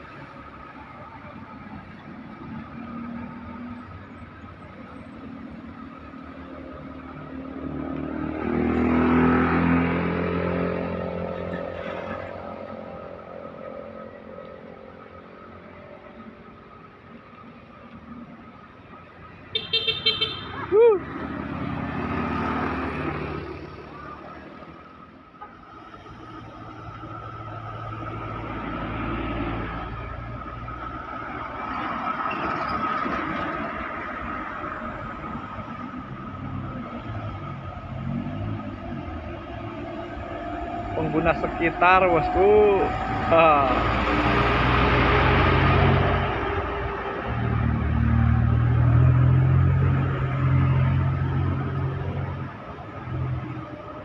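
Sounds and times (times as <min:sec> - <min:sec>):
road noise: 0:00.0 - 0:54.0
vehicle passing by: 0:06.6 - 0:14.4, 0:20.6 - 0:25.0, 0:25.7 - 0:54.0.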